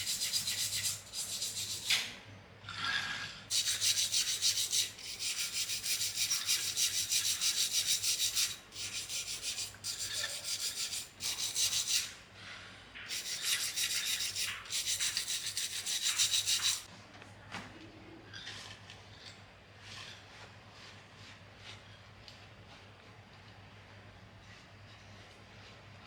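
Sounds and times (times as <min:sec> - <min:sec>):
dry rasping scrubbing strokes: 0:03.5 - 0:12.2, 0:13.1 - 0:16.9.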